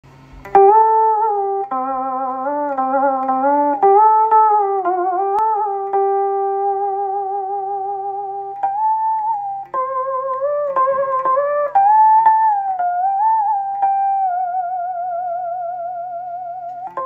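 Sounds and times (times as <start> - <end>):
amplified monochord plucked notes: 0.1 - 17.0.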